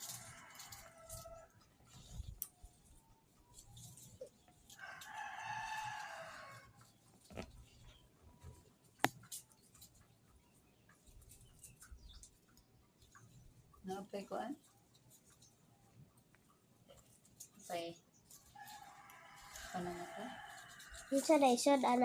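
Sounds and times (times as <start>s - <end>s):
rooster crowing: 4.8s - 6.8s, 18.6s - 21.2s.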